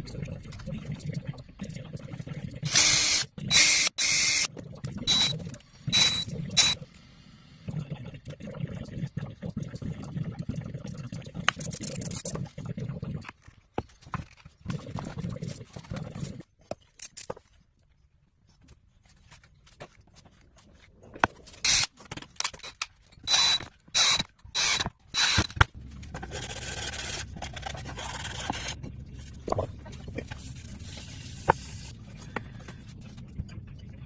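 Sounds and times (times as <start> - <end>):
low steady hum: 20.4 - 34.0.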